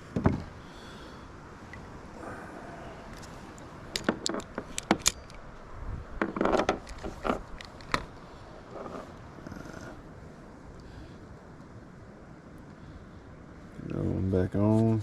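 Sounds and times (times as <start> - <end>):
fishing gear clicking and rattling: 3.1 - 5.5, 6.2 - 9.1.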